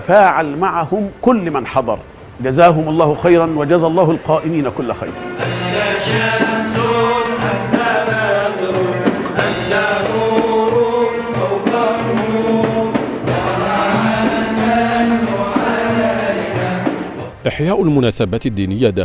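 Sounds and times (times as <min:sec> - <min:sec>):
men chanting religious song: 0:02.5 - 0:17.5
steady beat: 0:04.1 - 0:17.4.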